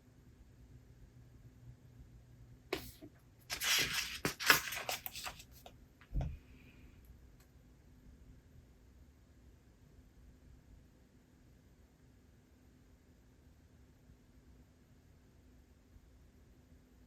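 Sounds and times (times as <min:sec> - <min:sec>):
book page turning: 0:02.8 - 0:05.7.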